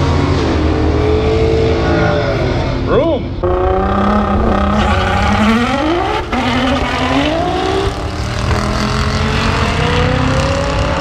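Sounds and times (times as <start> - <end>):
race cars accelerating: 0.0 - 11.0.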